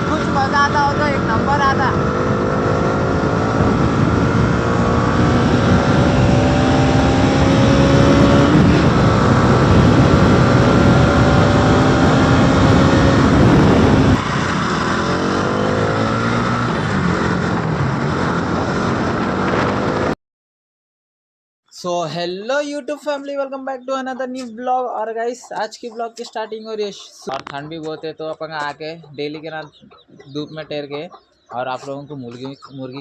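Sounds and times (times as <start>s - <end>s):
motorcycle engine accelerating: 0.0s - 20.2s
wind noise: 0.0s - 20.2s.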